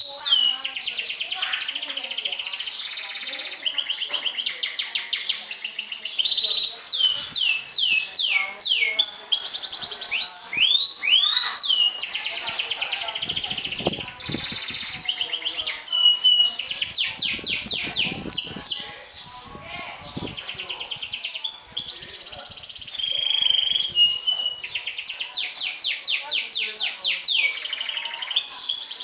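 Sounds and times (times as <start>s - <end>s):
canary singing: 0.0s - 29.0s.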